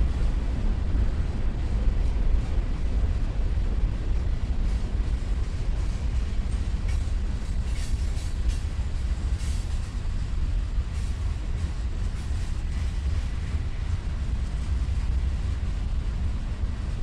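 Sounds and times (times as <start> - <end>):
freight train wheels rumbling on rail: 0.0 - 17.0.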